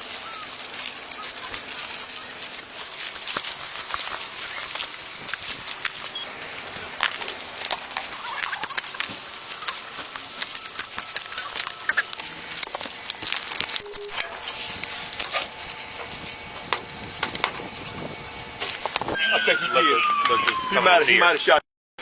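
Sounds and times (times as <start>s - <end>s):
camera rubbing against clothing: 0.0s - 19.2s.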